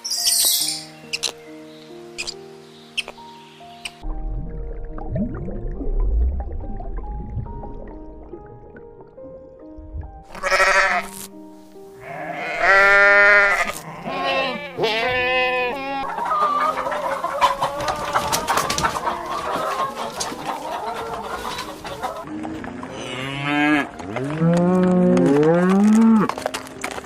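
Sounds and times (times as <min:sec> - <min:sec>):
soft background music: 0:00.0 - 0:27.0
farm animal calls: 0:10.3 - 0:11.3, 0:12.0 - 0:24.5.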